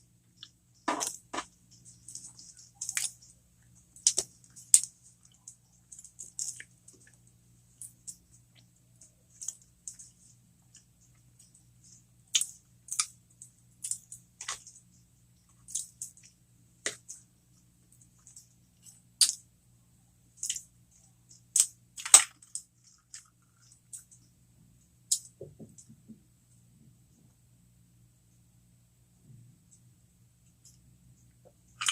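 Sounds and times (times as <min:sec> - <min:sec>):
chewing crunchy food close up: 0:00.3 - 0:11.5.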